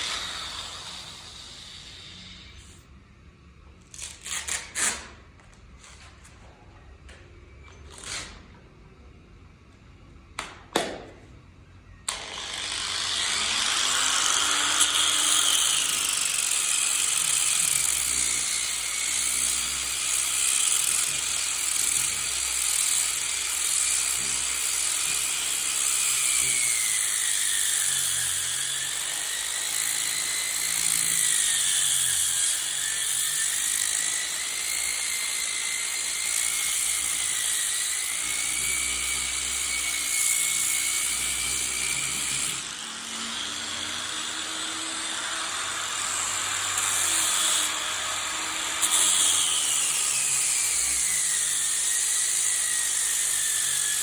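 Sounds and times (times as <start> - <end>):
power tool whining against wood: 12.1 - 54.0.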